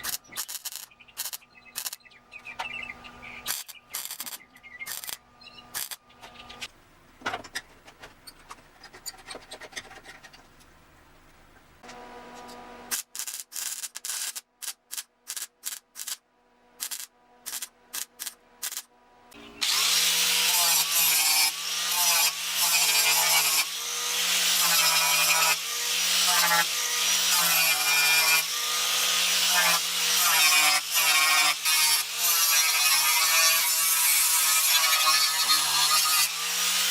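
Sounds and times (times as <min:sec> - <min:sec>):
power sander on metal: 0:19.6 - 0:36.9.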